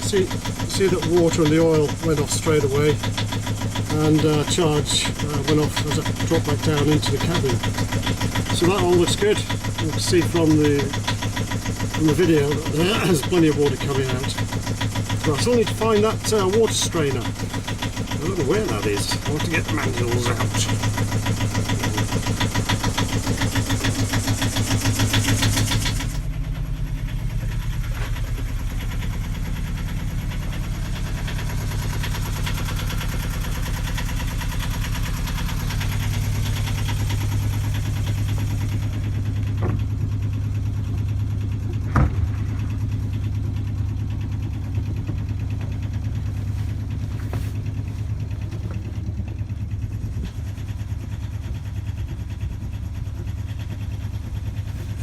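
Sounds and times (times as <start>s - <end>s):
boat engine idling: 0.0s - 55.0s
sharp knocks: 39.5s - 40.0s, 41.6s - 42.8s.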